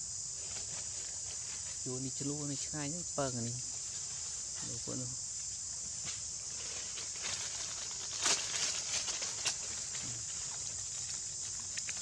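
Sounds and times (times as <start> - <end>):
high-pitched insect chorus: 0.0 - 12.0
crackles and taps: 11.6 - 12.0.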